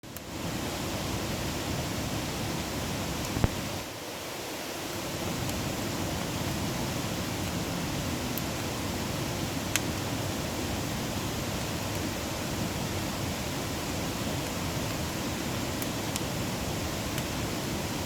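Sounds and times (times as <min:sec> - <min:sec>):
sharp crack of fire: 0:00.0 - 0:04.2, 0:04.8 - 0:18.0
campfire burning: 0:00.0 - 0:18.0
fire popping: 0:01.0 - 0:03.9, 0:05.0 - 0:18.0.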